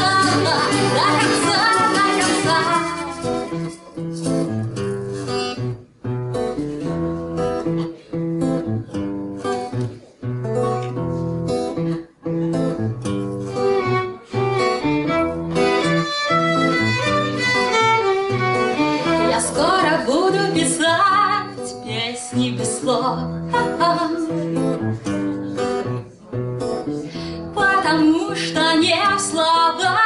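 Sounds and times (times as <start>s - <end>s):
acoustic guitar strumming chords: 0.0s - 29.1s
violin playing: 13.5s - 19.6s.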